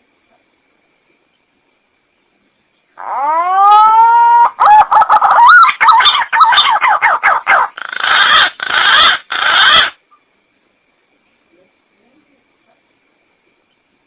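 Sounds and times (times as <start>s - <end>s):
pigeon whistling calls: 3.1s - 10.0s.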